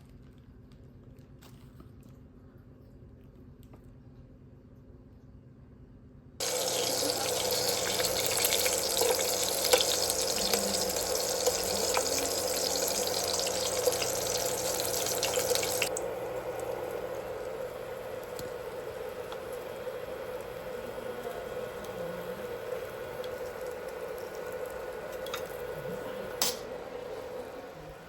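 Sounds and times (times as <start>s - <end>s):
tap water running into sink: 6.4s - 20.5s.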